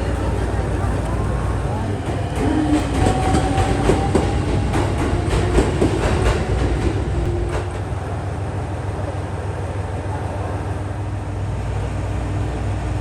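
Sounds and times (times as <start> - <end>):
wheels clicking over track: 0.0 - 7.8
diesel railcar rumbling: 0.0 - 13.0.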